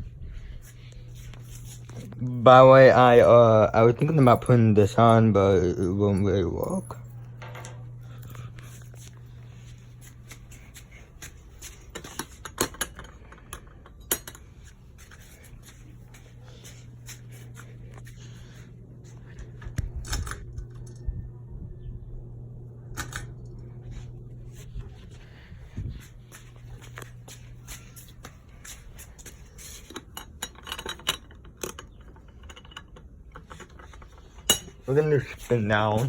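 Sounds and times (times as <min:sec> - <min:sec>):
ceiling fan motor hum: 0:00.0 - 0:36.0
fan clicks and light knocks: 0:09.9 - 0:21.2, 0:24.7 - 0:36.0.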